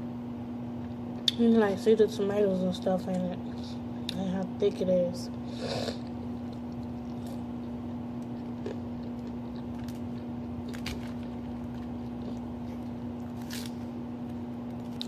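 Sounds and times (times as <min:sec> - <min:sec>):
electrical hum: 0:00.0 - 0:15.0
person chewing: 0:05.3 - 0:15.0.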